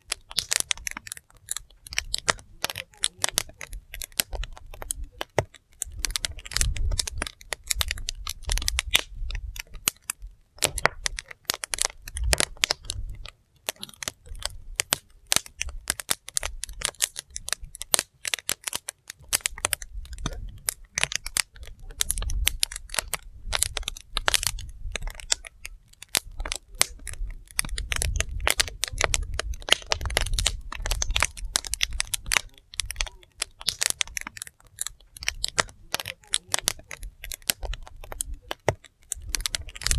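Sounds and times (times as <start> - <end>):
burning logs crackling and popping: 0.0 - 39.9.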